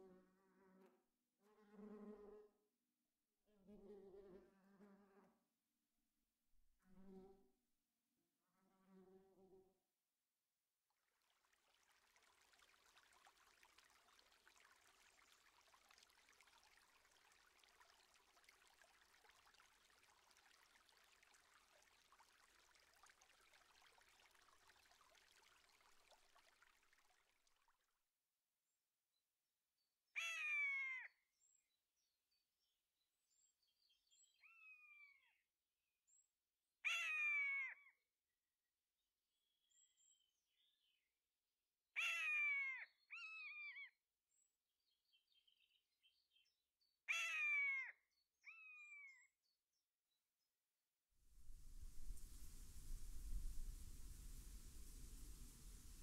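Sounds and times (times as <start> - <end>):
faint trickle of stream: 10.8 - 28.2, 51.2 - 56.0.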